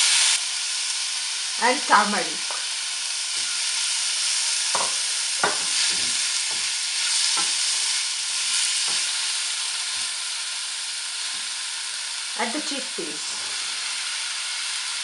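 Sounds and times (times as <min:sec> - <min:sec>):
vegetables sizzling in oil: 0:00.0 - 0:15.0
wooden spatula scraping a wok: 0:04.7 - 0:10.2, 0:13.2 - 0:13.9.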